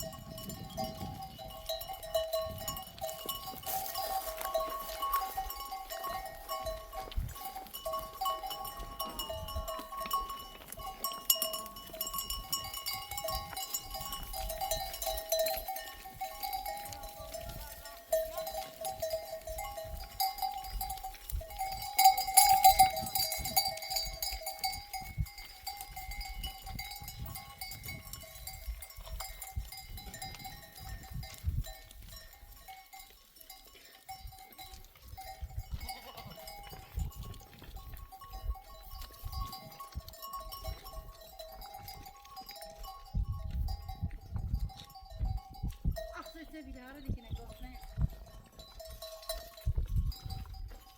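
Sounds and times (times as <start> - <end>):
sheep bells ringing and clanking: 0.0 - 50.9.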